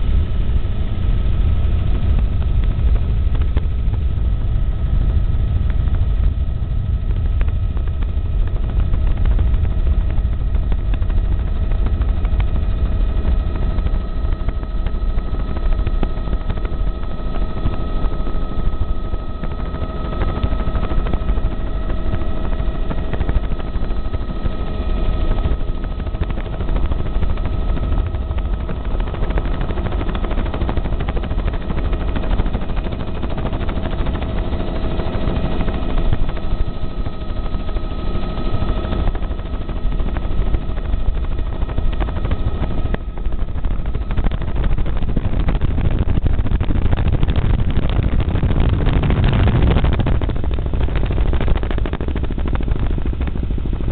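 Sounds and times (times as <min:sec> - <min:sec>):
helicopter rotor and engine noise: 0:00.0 - 0:53.9
steady whine: 0:00.0 - 0:53.9.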